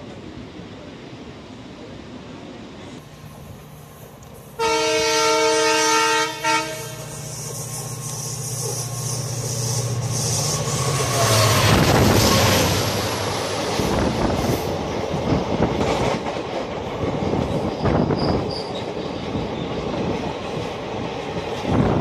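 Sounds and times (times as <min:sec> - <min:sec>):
train rumbling on rails: 0:00.0 - 0:22.0
train horn: 0:04.6 - 0:07.2.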